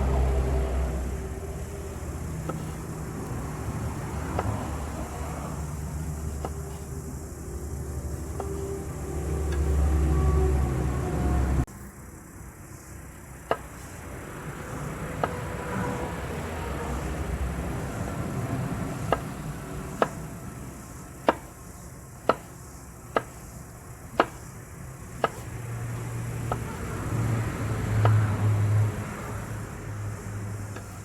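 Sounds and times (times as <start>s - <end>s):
knife chopping on cutting board: 2.4s - 2.9s, 6.0s - 7.0s, 22.2s - 22.5s, 23.1s - 23.4s, 24.2s - 24.4s, 25.2s - 25.5s.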